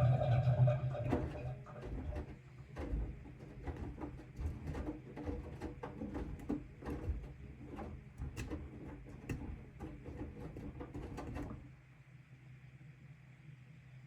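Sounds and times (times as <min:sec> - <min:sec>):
motor low hum: 0:00.0 - 0:08.8
washing machine drum turning: 0:00.0 - 0:11.7.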